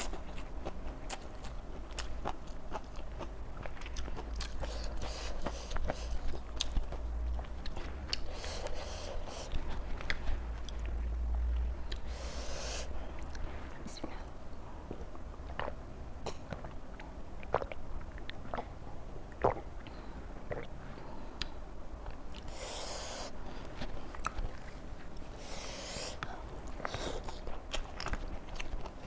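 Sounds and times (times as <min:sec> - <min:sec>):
chewing raw vegetables: 0:00.0 - 0:12.1, 0:14.9 - 0:20.8, 0:21.4 - 0:29.0
breathy hisses: 0:12.1 - 0:13.0, 0:22.5 - 0:23.4, 0:25.3 - 0:27.3.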